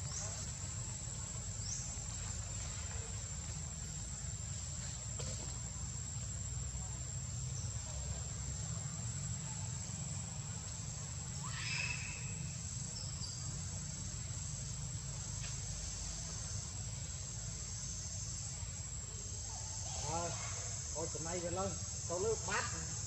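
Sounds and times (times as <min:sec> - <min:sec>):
faint chirp: 0:11.3 - 0:14.0.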